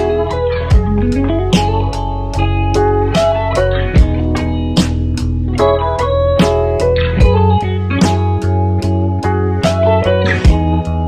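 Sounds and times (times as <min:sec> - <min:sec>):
guitar-led background music: 0:00.0 - 0:11.0.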